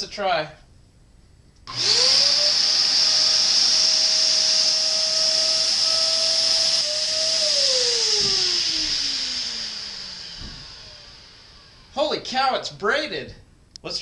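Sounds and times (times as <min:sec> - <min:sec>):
motor spinning down: 0:01.7 - 0:12.3
vacuum cleaner running: 0:01.7 - 0:12.3.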